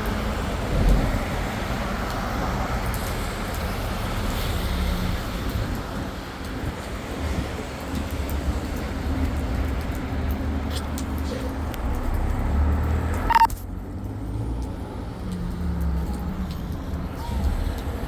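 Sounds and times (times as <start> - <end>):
traffic on wet road: 0.0 - 18.0
short sharp high beep: 13.3 - 13.5.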